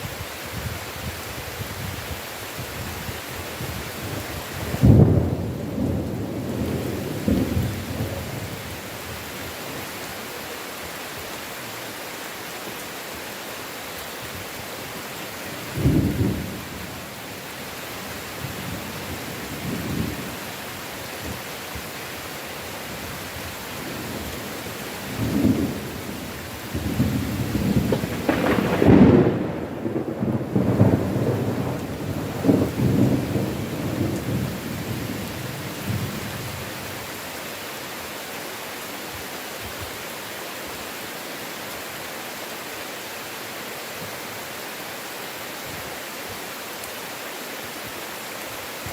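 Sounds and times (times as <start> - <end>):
heavy rain: 0.0 - 48.9
thunder: 26.8 - 34.5.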